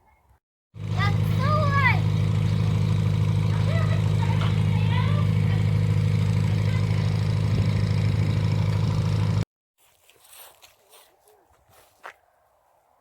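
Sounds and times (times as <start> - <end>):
vehicle engine humming: 0.8 - 9.4.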